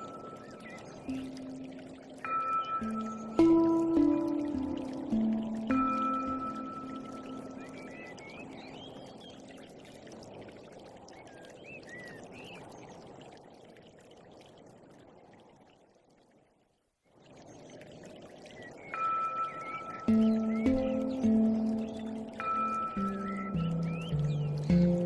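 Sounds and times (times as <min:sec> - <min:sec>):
steady musical tones: 0:00.0 - 0:08.0, 0:20.0 - 0:25.0
bird chirps: 0:00.0 - 0:09.5, 0:18.6 - 0:25.0
running water: 0:00.0 - 0:25.0.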